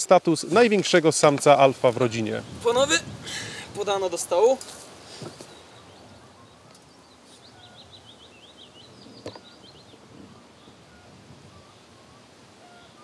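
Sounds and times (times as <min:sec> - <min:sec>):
outdoor background hiss: 0:00.0 - 0:13.0
small bird chirping: 0:05.2 - 0:10.9.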